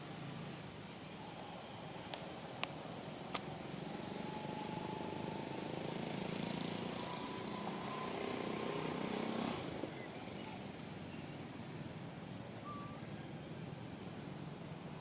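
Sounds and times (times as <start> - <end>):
faint rising whine: 0.1 - 9.8.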